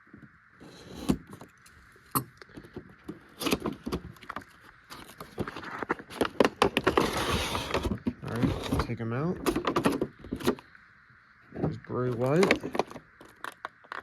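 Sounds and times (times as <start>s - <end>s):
cardboard and plastic crinkling: 2.5s - 10.6s.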